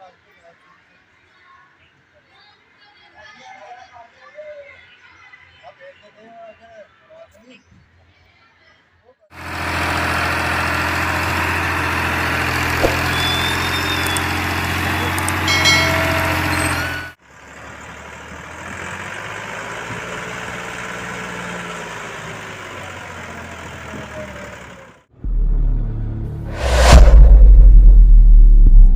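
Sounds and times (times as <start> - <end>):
tractor engine running: 9.4 - 26.5.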